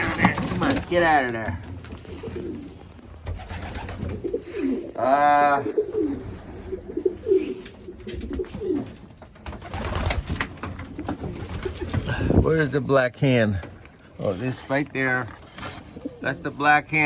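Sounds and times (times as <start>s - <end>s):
pigeons cooing: 1.8s - 12.3s, 15.6s - 16.9s.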